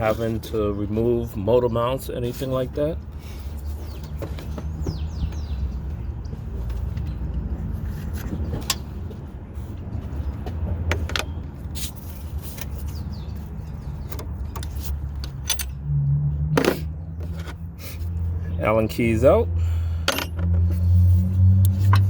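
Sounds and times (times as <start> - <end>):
metal tools rattling: 14.4 - 15.8.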